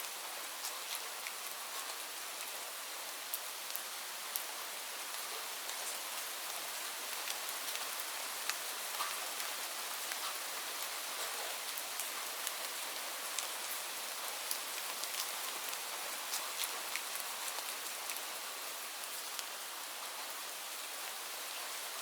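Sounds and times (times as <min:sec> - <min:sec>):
steady rain hissing: 0:00.0 - 0:22.0.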